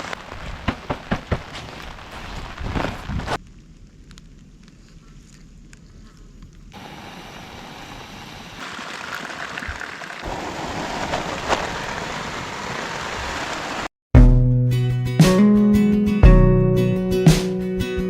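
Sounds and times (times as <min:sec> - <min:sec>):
heavy rain falling: 0:00.0 - 0:03.4, 0:06.8 - 0:13.9.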